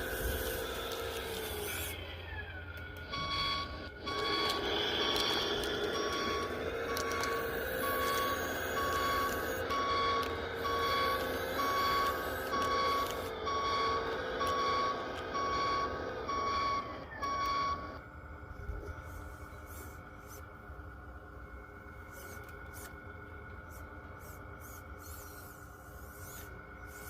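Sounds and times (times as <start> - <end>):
toy reversing beeper: 0.0 - 18.0
steady hum: 0.0 - 27.0.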